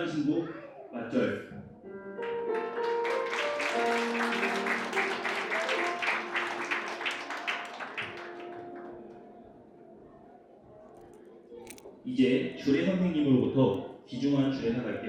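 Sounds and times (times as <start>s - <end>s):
soft background music: 1.9s - 15.0s
audience applause: 2.6s - 9.3s.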